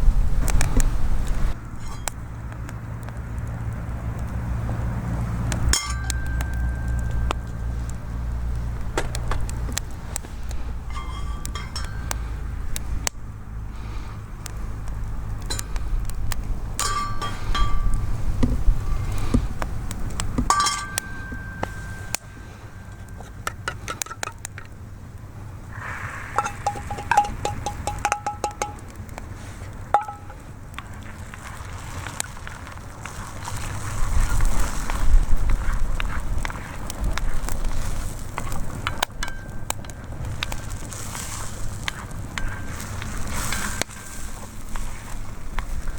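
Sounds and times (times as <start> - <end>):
steady low rumble: 0.0 - 31.5
wood fire crackling: 0.0 - 45.9
metal utensil clinking on cookware: 5.7 - 7.6, 10.8 - 12.4, 16.8 - 18.1, 20.5 - 22.2, 26.4 - 28.8, 30.0 - 30.4.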